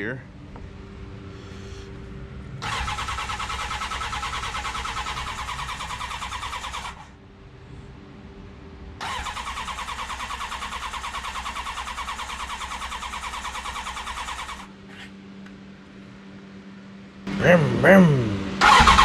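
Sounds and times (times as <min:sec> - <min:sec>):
electric starter cranking engine: 0:02.6 - 0:07.1, 0:09.0 - 0:14.7, 0:18.6 - 0:19.0.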